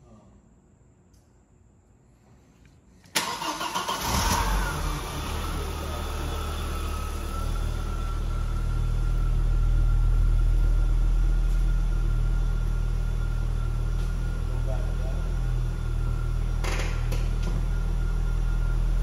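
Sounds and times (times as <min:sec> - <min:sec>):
engine starter cranking: 0:03.1 - 0:04.8
car engine idling: 0:03.2 - 0:19.0
high whine: 0:04.7 - 0:19.0.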